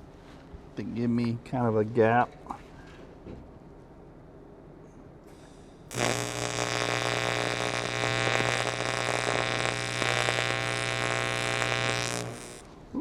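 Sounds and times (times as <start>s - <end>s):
welding arc buzzing: 5.9s - 12.8s.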